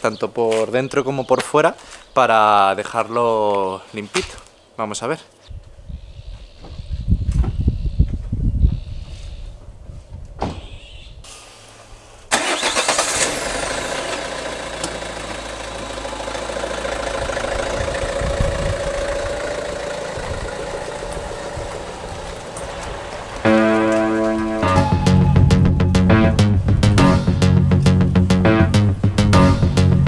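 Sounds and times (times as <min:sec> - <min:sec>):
hiss of spray: 0:11.2 - 0:12.2
pressure washer running: 0:13.0 - 0:24.6.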